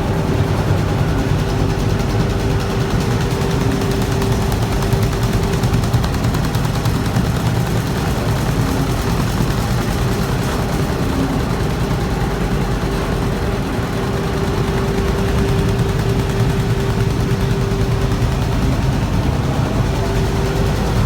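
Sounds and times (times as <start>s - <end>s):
carpet-beating machine rattle: 0.0s - 21.0s
steady motor hum: 0.0s - 21.0s.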